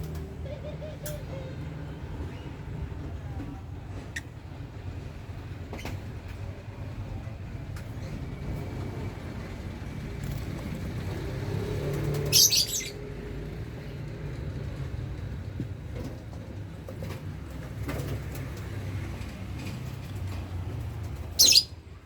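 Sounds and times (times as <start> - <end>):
harsh high bird calls: 12.2 - 13.0, 21.4 - 21.8.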